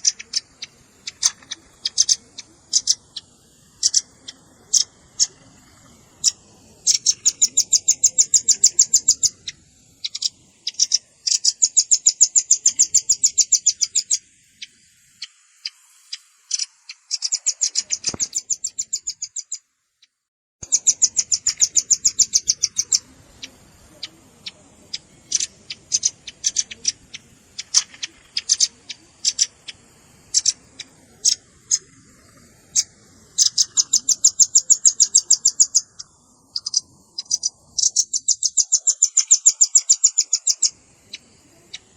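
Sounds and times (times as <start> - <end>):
nuthatch trilling chips: 0.0 - 19.6, 20.6 - 41.9.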